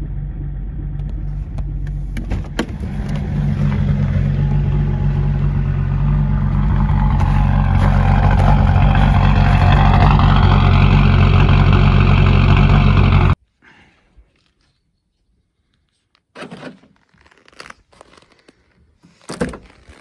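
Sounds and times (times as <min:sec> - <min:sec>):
diesel engine running: 0:00.0 - 0:13.4.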